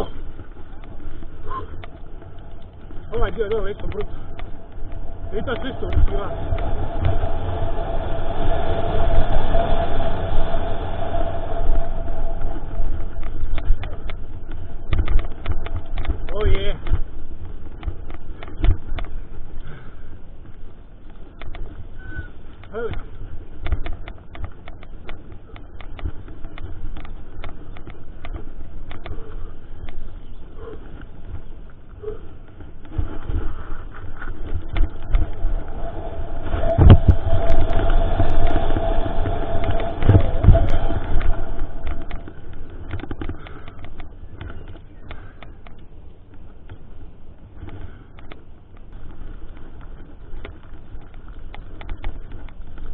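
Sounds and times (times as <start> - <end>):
wind rumble on microphone: 0.0 - 52.9
bike rattling clicks and knocks: 12.9 - 35.4, 40.0 - 52.9.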